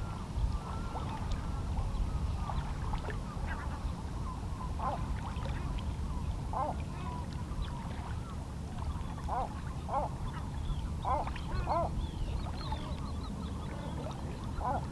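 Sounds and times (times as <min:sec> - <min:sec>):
waterbird calls: 0:06.5 - 0:08.1, 0:08.8 - 0:14.9.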